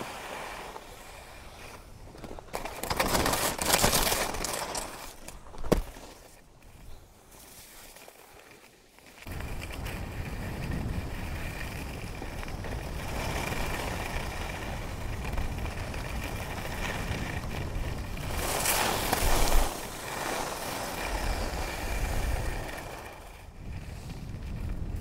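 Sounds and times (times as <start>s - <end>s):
skis scraping over snow: 0.0s - 25.0s
wind on microphone: 9.3s - 25.0s.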